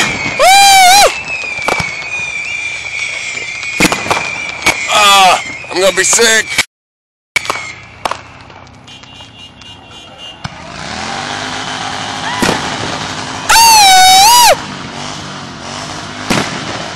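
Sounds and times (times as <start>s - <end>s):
firework pops and cracks: 0.0s - 5.0s, 7.4s - 9.8s, 12.3s - 13.1s, 16.3s - 16.9s
whistling firework: 0.0s - 6.7s, 7.4s - 14.8s, 16.1s - 16.9s.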